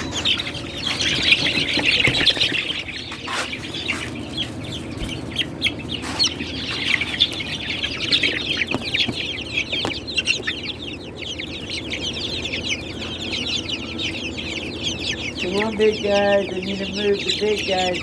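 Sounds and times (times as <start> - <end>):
chickens peeping and clucking: 0.0 - 18.0.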